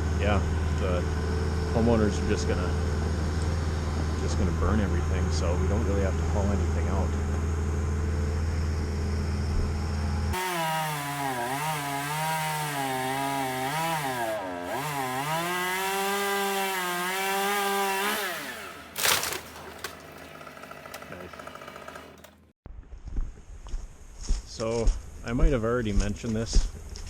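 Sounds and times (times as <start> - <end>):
low hum: 0.0 - 10.4
chainsaw cutting wood: 10.3 - 22.5
sharp crack or crash: 18.9 - 20.1.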